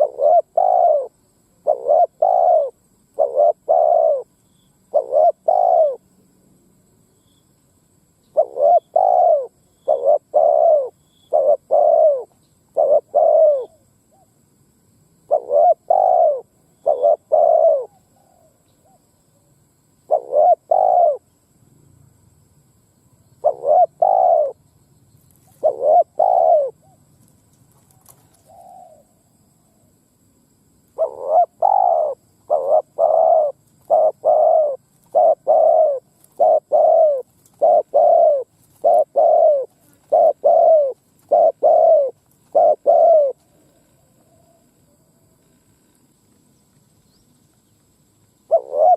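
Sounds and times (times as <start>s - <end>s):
dove cooing: 0.0s - 6.1s, 8.3s - 14.3s, 15.3s - 19.0s, 20.1s - 21.2s, 23.4s - 24.6s, 25.4s - 27.1s, 27.9s - 29.9s, 31.0s - 45.3s, 48.5s - 48.9s.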